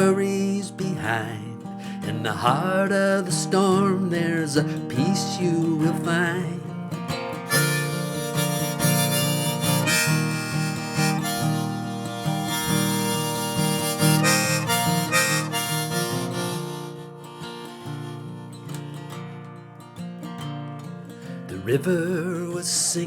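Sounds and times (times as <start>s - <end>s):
strummed acoustic guitar: 0.0s - 23.0s
harmonica solo: 7.5s - 19.2s.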